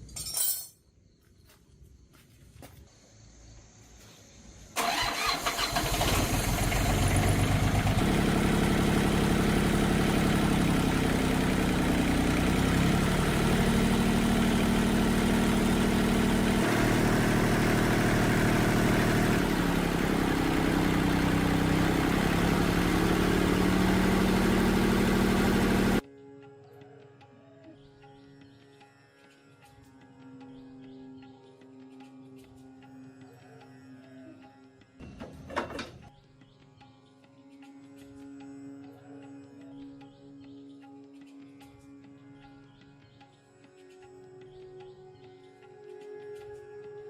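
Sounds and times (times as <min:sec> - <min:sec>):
tractor engine running: 0:04.8 - 0:26.0.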